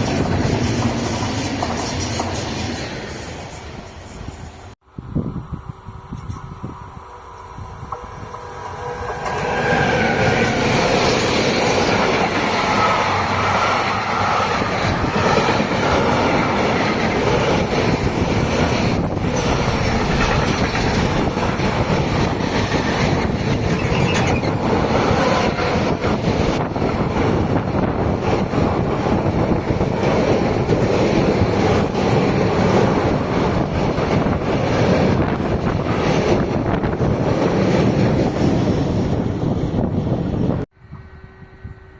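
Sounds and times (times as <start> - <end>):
train wheels running over rails: 0.0 - 3.6, 7.8 - 40.4
wheel squeal: 23.1 - 25.6.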